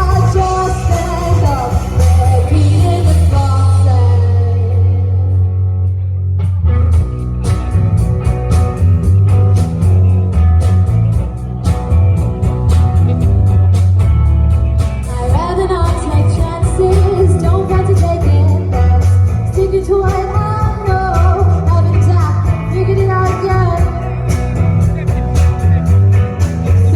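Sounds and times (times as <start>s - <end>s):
steady drum beat: 0.0s - 3.8s, 7.0s - 26.9s
person singing: 0.0s - 5.5s, 15.0s - 25.2s
live band playing: 0.0s - 26.9s.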